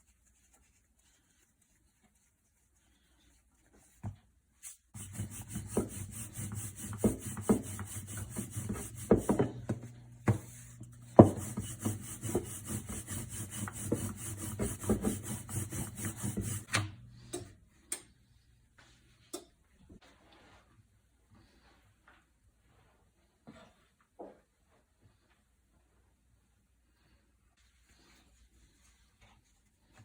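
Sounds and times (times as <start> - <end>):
rubbing and scraping on wood: 0.2 - 16.7.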